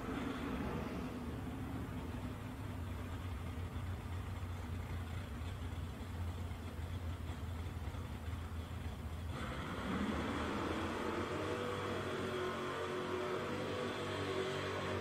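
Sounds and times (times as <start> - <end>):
car engine idling: 0.0 - 10.5.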